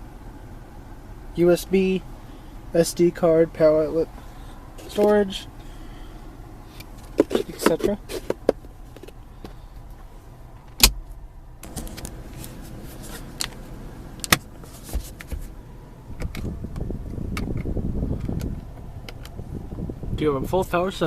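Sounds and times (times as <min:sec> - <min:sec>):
low cabin hum: 0:00.0 - 0:21.0
car trim clicks and knocks: 0:06.8 - 0:09.6, 0:10.6 - 0:12.5, 0:14.2 - 0:15.5, 0:16.2 - 0:19.4
power window motor whirring: 0:11.6 - 0:12.7.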